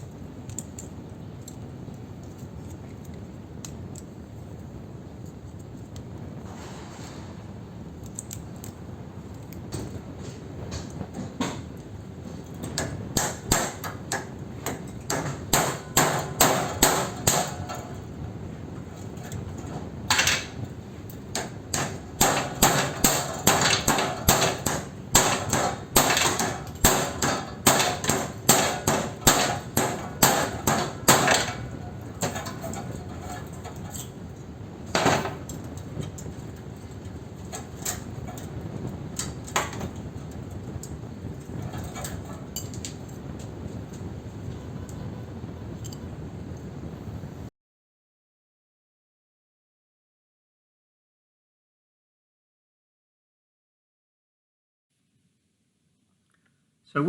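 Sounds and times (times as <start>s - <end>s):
hammer blows on metal: 21.4s - 33.5s.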